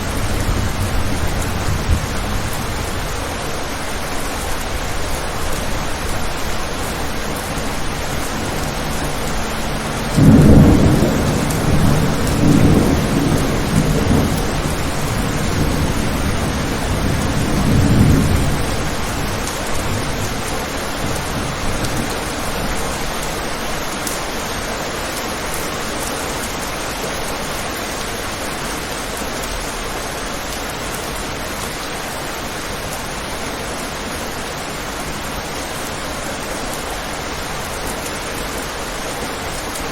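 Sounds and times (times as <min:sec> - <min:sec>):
thunder rolling: 0:00.0 - 0:22.9
rain on a window: 0:00.0 - 0:39.9.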